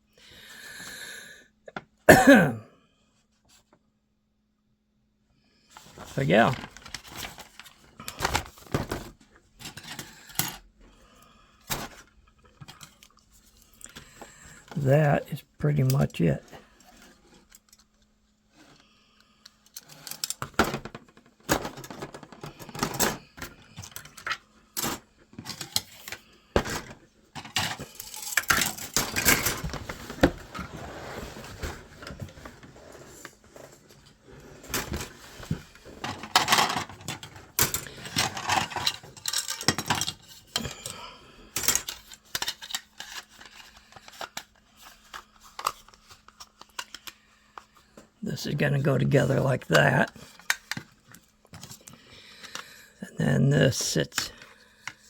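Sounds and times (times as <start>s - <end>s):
rustling and scraping: 16.6s - 40.6s
plastic pieces clicking and rattling: 27.4s - 29.7s, 36.0s - 40.8s, 41.5s - 47.2s.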